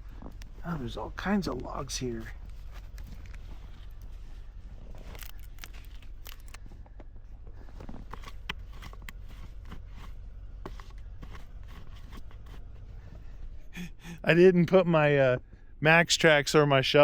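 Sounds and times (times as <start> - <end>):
footsteps crunching in snow: 0.0 - 6.4
steady low rumble: 0.0 - 17.0.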